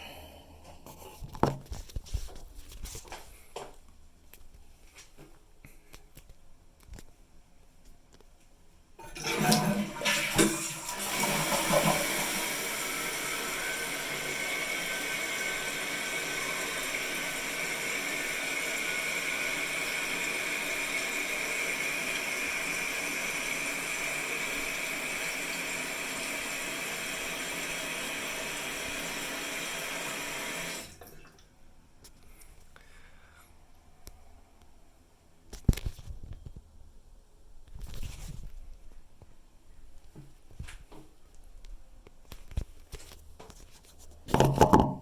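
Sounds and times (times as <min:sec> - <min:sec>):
toilet tank refilling hiss: 0:09.0 - 0:31.4
toilet flushing: 0:09.0 - 0:31.5.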